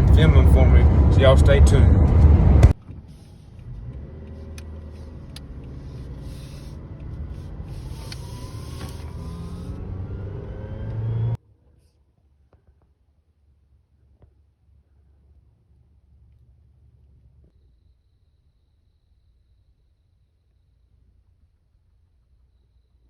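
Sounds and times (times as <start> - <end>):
vehicle engine and road noise: 0.0 - 11.4.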